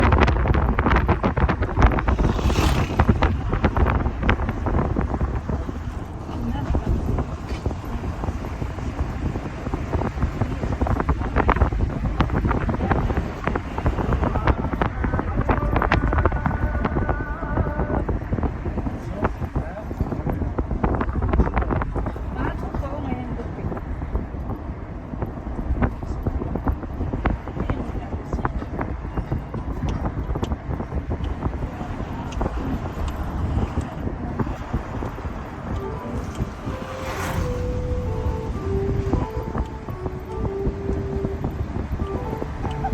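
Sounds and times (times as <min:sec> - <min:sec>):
wind buffeting microphone: 0:00.0 - 0:42.9
steady pitched tone: 0:35.0 - 0:42.9.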